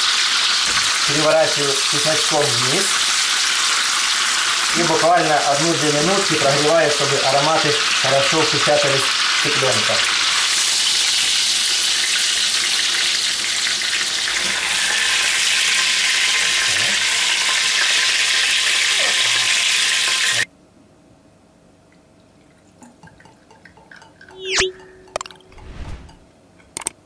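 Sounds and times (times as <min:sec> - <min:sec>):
chicken sizzling in frying pans: 0:00.0 - 0:20.5.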